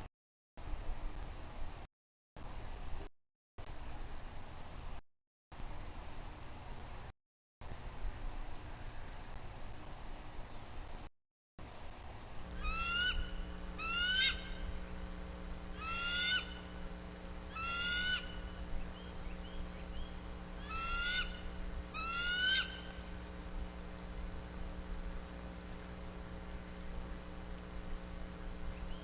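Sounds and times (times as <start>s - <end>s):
steady electrical hum: 5.6s - 29.0s
bird calling: 12.6s - 23.8s, 28.7s - 29.0s.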